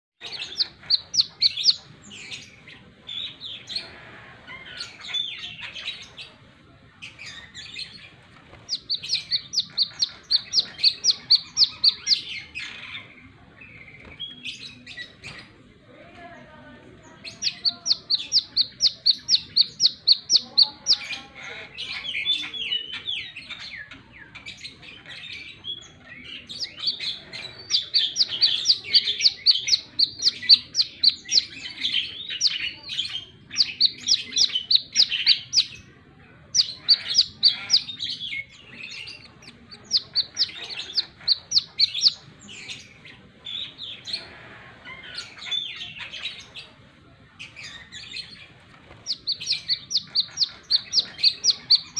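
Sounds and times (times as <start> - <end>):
bird twittering: 0.2 - 2.6, 8.6 - 12.9, 17.2 - 21.2, 26.4 - 35.9, 36.5 - 42.9, 48.9 - 51.9.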